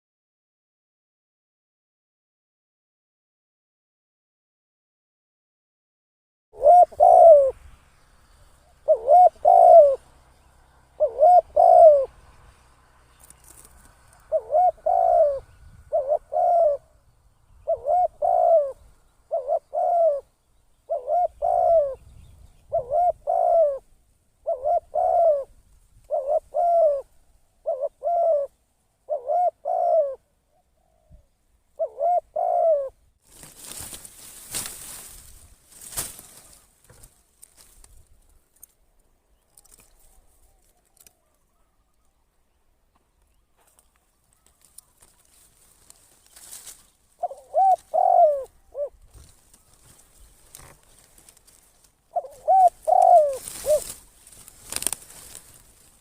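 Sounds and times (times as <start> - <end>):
dove cooing: 6.6 - 7.6, 8.6 - 10.2, 10.9 - 12.2, 13.4 - 33.0, 47.1 - 55.9
rustling noise: 33.2 - 38.8, 43.6 - 47.1, 49.0 - 56.0.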